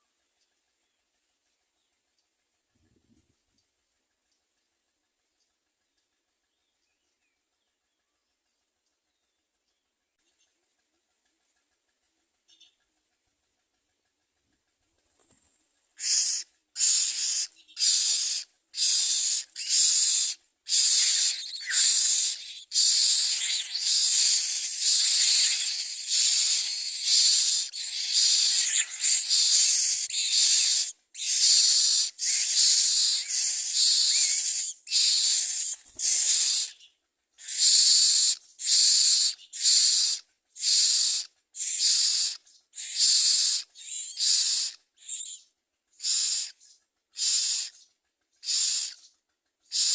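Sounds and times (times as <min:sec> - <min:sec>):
nestlings begging with hissing calls: 0:16.0 - 0:45.4, 0:46.0 - 0:46.6, 0:47.2 - 0:47.8, 0:48.4 - 0:49.0.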